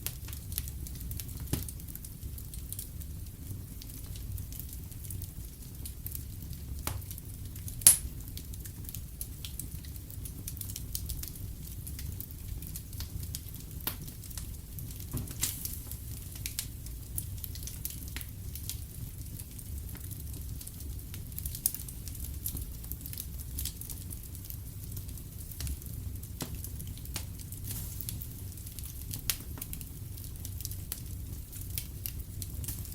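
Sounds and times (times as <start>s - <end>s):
wood fire crackling: 0.0s - 32.9s
sharp loud snap of fire: 6.8s - 7.2s, 7.8s - 8.2s, 15.0s - 16.7s.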